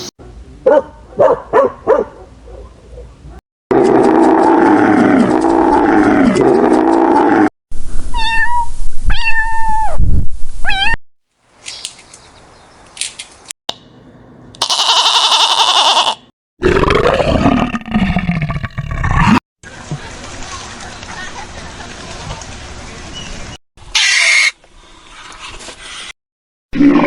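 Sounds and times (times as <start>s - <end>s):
cat meowing: 8.1s - 10.0s, 10.6s - 11.0s
loud high-pitched animal call: 14.6s - 16.3s, 23.9s - 24.6s.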